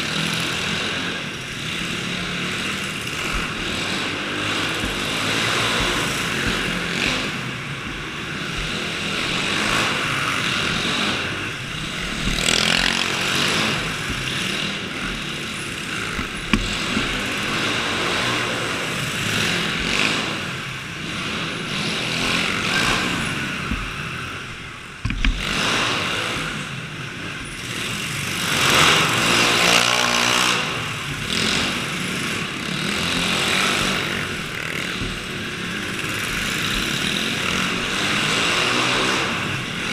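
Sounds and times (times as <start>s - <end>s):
small engines revving: 0.0s - 39.9s.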